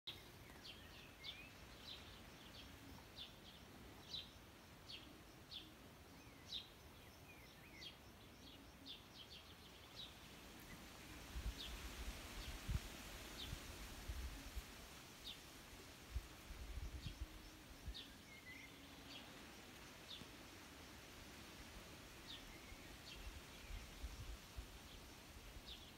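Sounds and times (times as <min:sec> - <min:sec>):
birds chirping: 0:00.1 - 0:12.6, 0:16.8 - 0:20.8
faint outdoor hiss: 0:00.1 - 0:25.9.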